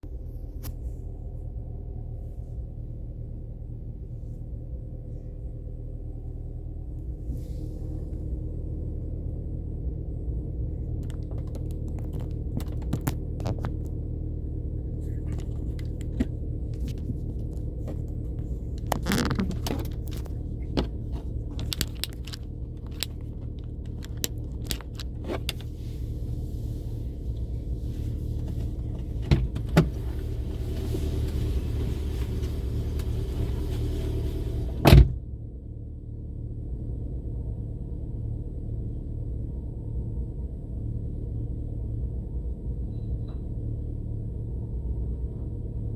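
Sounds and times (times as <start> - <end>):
car engine and road rumble: 0.0 - 45.9
clicks and rattles: 11.0 - 14.0, 15.0 - 25.7.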